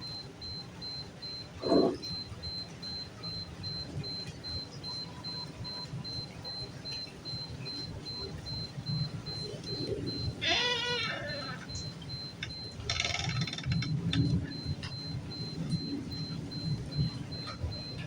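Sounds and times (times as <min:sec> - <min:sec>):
steady rain: 0:00.0 - 0:18.0
bleat-like animal call: 0:10.4 - 0:11.7.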